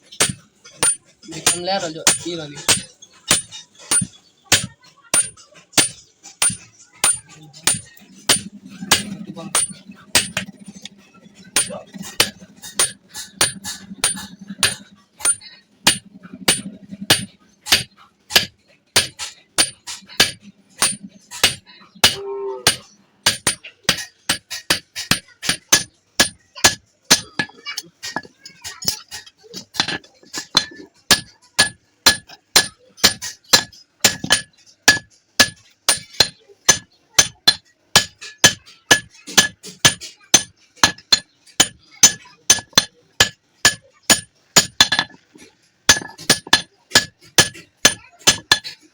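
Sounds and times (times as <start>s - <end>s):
hammer beating iron: 0.0s - 48.9s.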